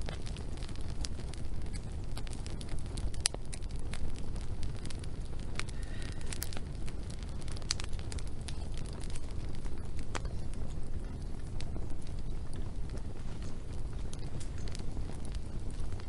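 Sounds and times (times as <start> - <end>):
steady low rumble: 0.0 - 16.0
wood fire crackling and popping: 0.0 - 16.0.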